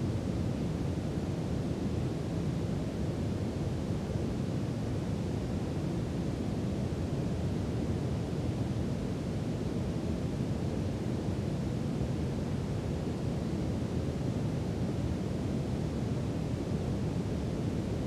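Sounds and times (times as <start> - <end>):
brown noise rumbling hiss: 0.0 - 18.0.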